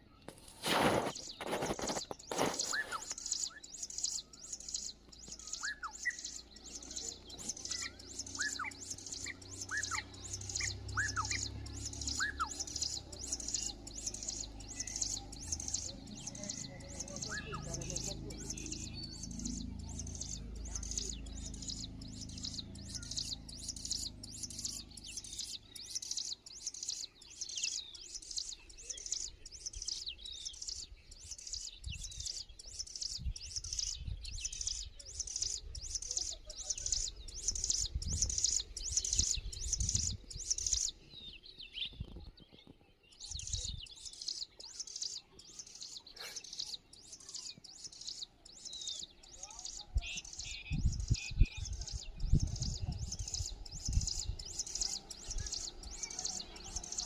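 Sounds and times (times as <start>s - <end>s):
small birds chirping: 0.0s - 57.0s
dull low rumbles: 8.8s - 25.9s, 37.0s - 42.1s, 50.0s - 57.0s.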